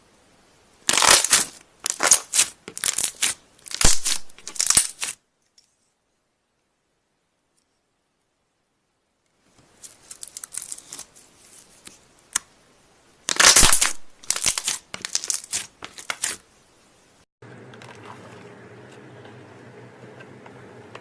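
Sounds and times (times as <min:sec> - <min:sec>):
slime crackling and popping: 0:00.9 - 0:05.2, 0:13.2 - 0:16.4.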